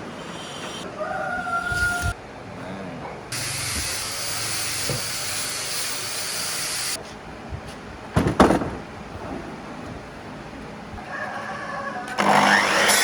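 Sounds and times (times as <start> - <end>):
compressed air hissing: 3.4 - 7.0
loud knocks: 8.1 - 9.0.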